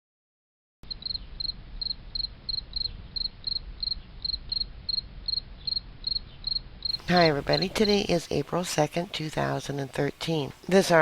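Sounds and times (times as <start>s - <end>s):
cricket chirping: 0.9s - 7.8s
faint low hum: 0.9s - 11.0s.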